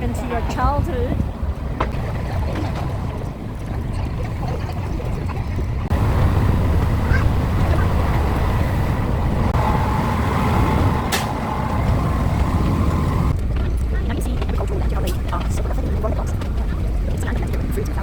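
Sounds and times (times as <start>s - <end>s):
moving train rumble: 0.0s - 18.0s
sharp click: 11.1s - 11.4s.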